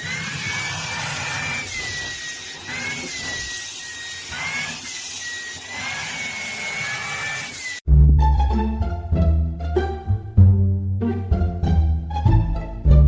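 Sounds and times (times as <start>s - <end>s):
small electric motor whining: 0.0s - 7.8s.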